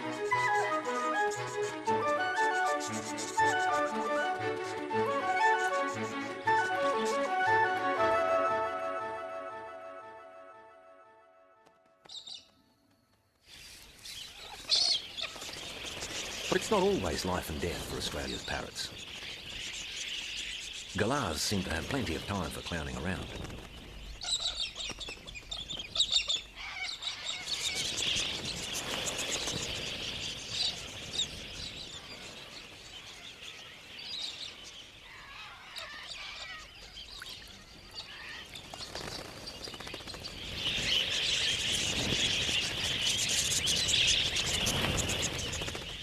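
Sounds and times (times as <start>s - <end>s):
parrots squawking and chirping: 0.4s - 7.7s, 26.0s - 27.9s, 35.0s - 37.3s.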